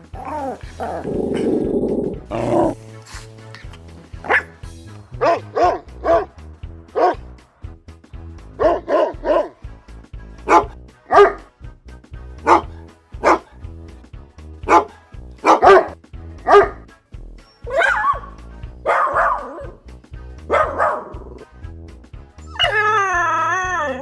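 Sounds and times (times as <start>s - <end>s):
background music: 0.0s - 24.0s
dog barking: 7.0s - 7.2s, 8.6s - 9.5s, 10.5s - 11.4s, 12.5s - 13.5s, 14.7s - 16.8s, 17.6s - 18.3s, 18.9s - 19.8s, 20.5s - 21.5s.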